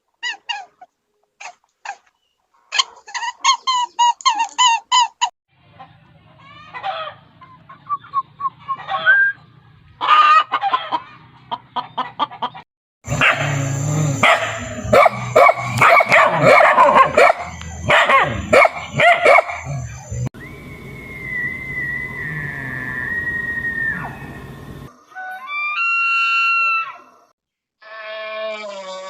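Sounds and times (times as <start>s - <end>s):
chickens clucking and squawking: 2.8s - 13.6s
low hum: 13.1s - 24.9s.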